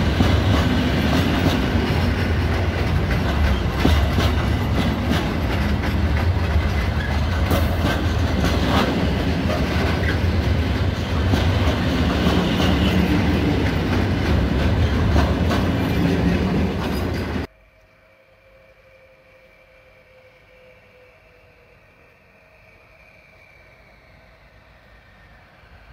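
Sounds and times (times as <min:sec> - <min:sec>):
freight train wheels rumbling: 0:00.0 - 0:17.5
wheels clicking over rail joints: 0:00.0 - 0:17.5.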